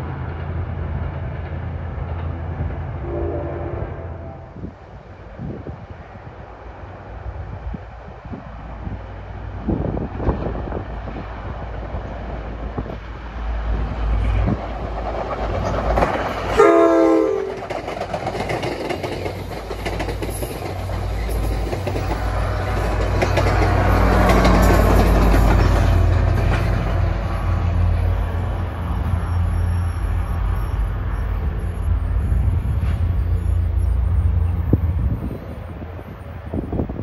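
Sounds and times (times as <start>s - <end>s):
diesel locomotive engine rumble: 0.0s - 37.0s
train horn blast: 2.9s - 4.7s, 16.5s - 17.6s
train wheels clattering over rails: 13.8s - 28.9s.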